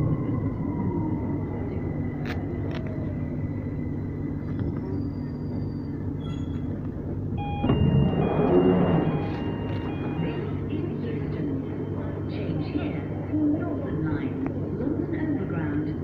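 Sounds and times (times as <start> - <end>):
train running rumble: 0.0 - 16.0
short electronic beeps: 7.4 - 10.5.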